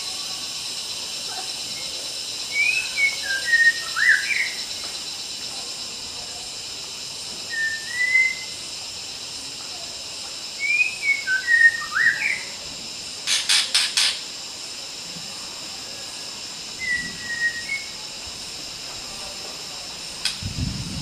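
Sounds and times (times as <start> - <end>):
high-pitched insect drone: 0.0 - 21.0
bird singing whistled notes: 1.7 - 4.9, 7.4 - 8.6, 10.5 - 12.6, 16.7 - 18.1
bird harsh rasps: 13.2 - 14.2.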